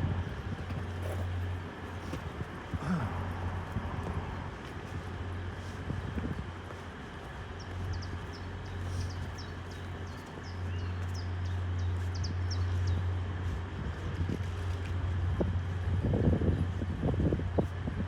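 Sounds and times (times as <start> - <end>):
low engine hum: 0.0 - 18.0
small birds chirping: 7.3 - 13.2.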